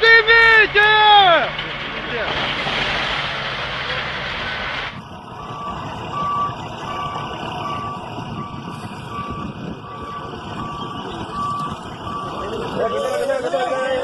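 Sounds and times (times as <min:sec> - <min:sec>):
vehicle engine noise: 0:00.0 - 0:14.0
reversing alarm beeping: 0:05.3 - 0:14.0.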